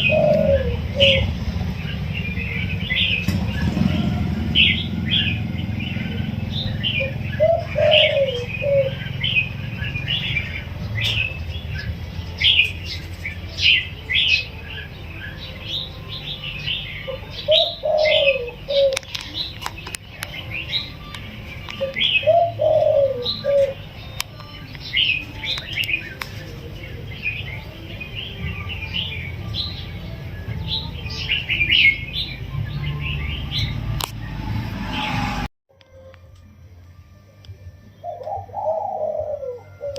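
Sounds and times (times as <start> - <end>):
dove cooing: 0.0 - 14.5, 16.7 - 24.0, 38.0 - 39.9
small birds chirping: 0.0 - 34.5.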